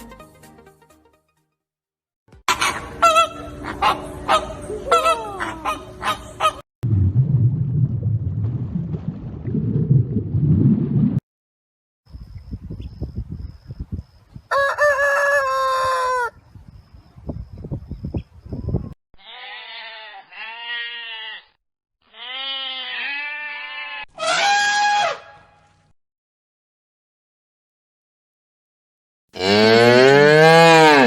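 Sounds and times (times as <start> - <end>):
wind rumble on microphone: 12.1 - 19.0
rooster crowing: 14.5 - 16.4.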